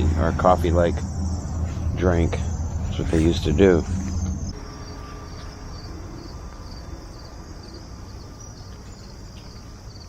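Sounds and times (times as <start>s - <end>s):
low rumble: 0.0s - 4.8s
crickets chirping: 0.0s - 10.0s.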